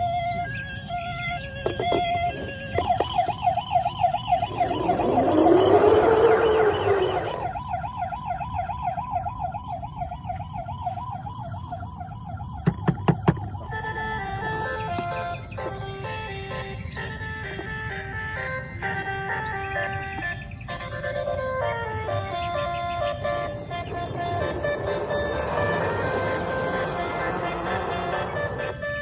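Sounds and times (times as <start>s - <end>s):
electronic toy siren wailing: 0.0s - 29.0s
noise burst with rising falling tone: 3.7s - 7.6s, 24.0s - 28.6s.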